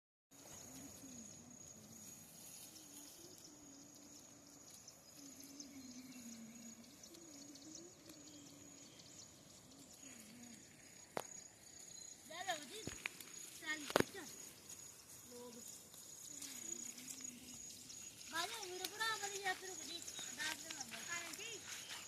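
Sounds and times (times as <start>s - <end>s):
high-pitched insect drone: 0.4s - 22.0s
faint wavering low tone: 0.6s - 10.7s.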